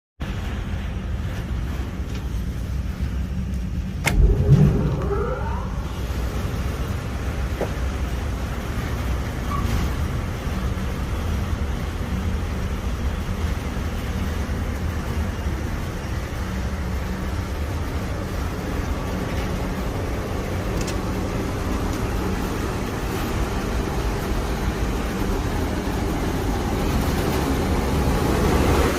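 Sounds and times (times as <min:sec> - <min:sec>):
extractor fan humming and rushing: 0:00.3 - 0:28.9.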